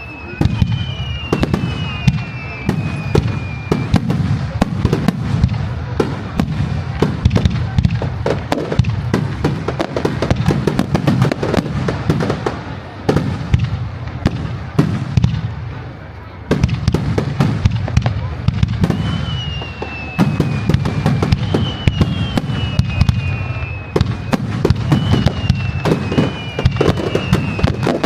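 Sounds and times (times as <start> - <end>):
thin high whistle: 0.0 - 4.0, 18.8 - 28.0
fireworks bangs and crackles: 0.0 - 28.0.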